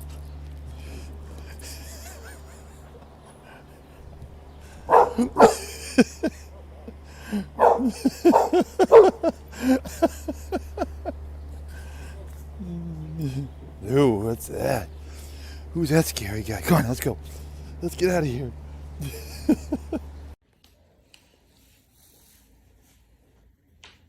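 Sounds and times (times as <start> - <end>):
low steady hum: 0.0 - 20.4
dog barking: 4.9 - 9.4.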